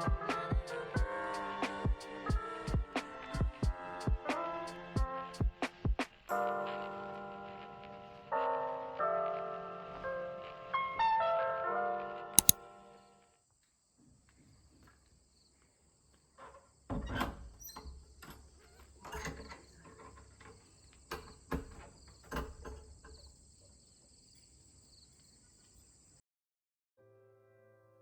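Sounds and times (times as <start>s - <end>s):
insects chirring: 22.0s - 26.2s.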